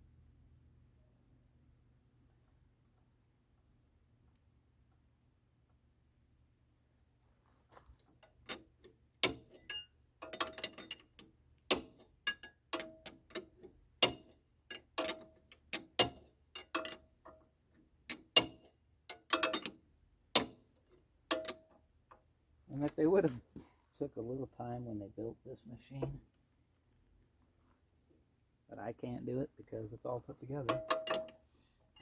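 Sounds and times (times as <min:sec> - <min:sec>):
wrench clicking on metal fitting: 0:30.7 - 0:31.4.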